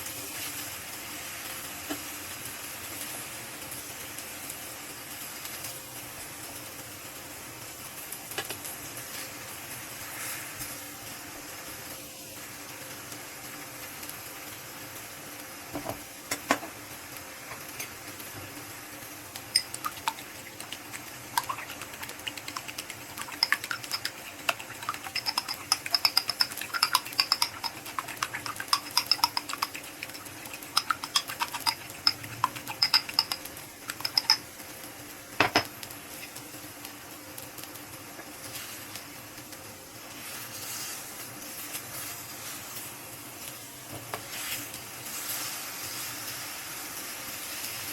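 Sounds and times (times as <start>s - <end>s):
utensil clinking against bowl: 19.5s - 34.4s.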